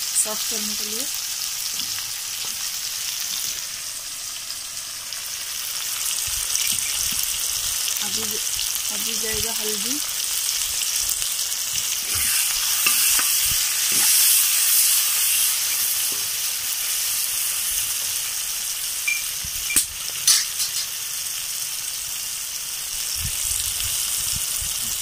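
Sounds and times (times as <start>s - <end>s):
vegetables sizzling in hot oil: 0.0s - 25.0s.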